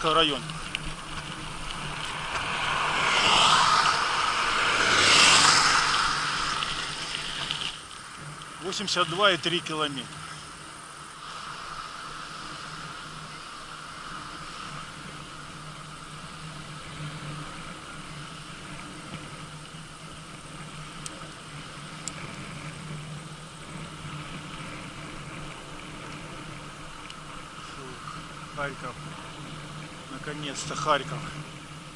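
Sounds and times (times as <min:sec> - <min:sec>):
rushing air: 0:00.0 - 0:08.7
bicycle tyres on asphalt: 0:00.0 - 0:31.9
constant low hum: 0:00.0 - 0:31.9.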